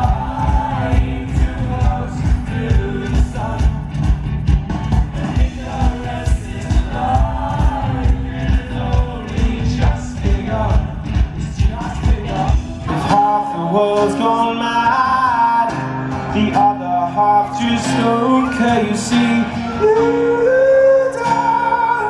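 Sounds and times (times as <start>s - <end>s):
steady drum beat: 0.0s - 13.2s
live band music: 0.0s - 22.0s.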